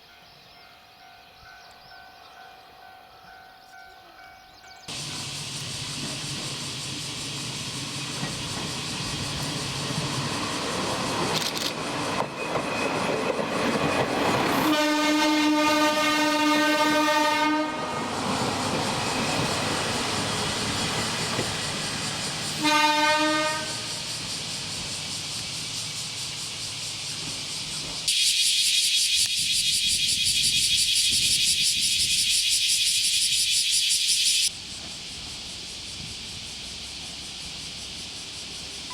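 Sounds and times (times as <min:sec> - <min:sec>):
diesel railcar passing: 0:00.0 - 0:28.7, 0:29.3 - 0:38.9
high-pitched fluttering hiss: 0:04.8 - 0:12.2, 0:18.1 - 0:38.9
train horn blasts: 0:14.6 - 0:18.2, 0:22.5 - 0:24.1.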